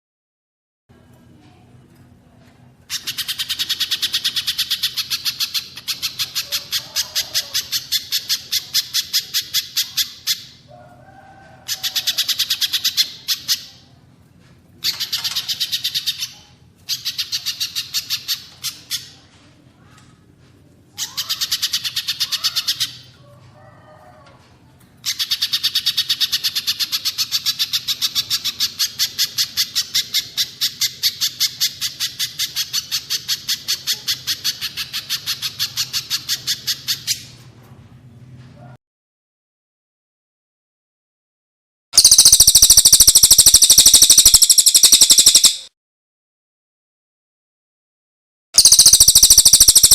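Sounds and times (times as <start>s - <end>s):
bird rapid high chattering: 2.9s - 10.6s, 11.7s - 13.8s, 14.8s - 19.2s, 21.0s - 23.1s, 25.0s - 37.2s, 42.0s - 45.7s, 48.6s - 49.9s
softer lower bird calls: 42.0s - 45.7s, 48.6s - 49.9s.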